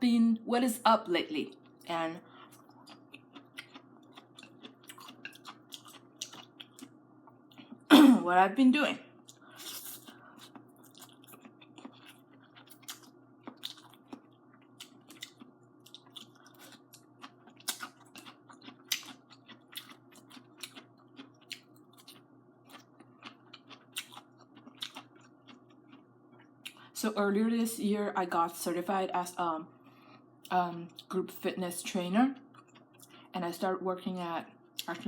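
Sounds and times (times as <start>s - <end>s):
faint hum: 0.0s - 35.0s
wet chewing and smacking: 1.4s - 7.9s, 9.2s - 26.9s, 32.4s - 33.3s.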